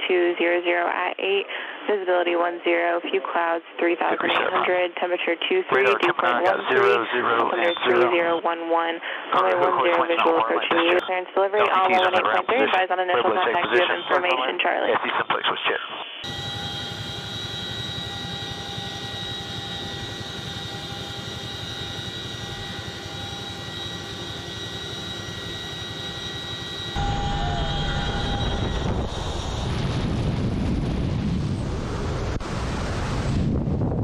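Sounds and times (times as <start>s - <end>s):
helicopter turbines whining: 4.1s - 14.4s, 16.2s - 33.0s
deep rushing noise: 27.0s - 34.0s.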